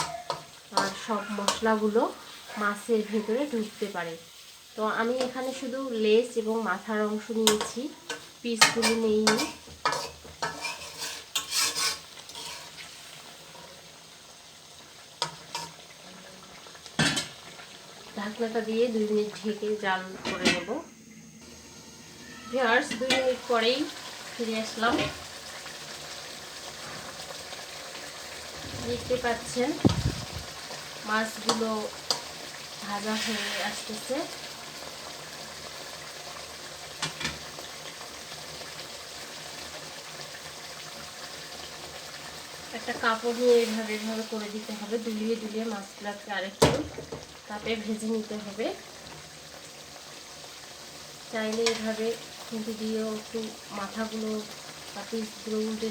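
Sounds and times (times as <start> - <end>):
fish sizzling in oil: 0.0 - 19.9, 21.4 - 55.9
metal spatula clinking on pan: 7.4 - 12.6.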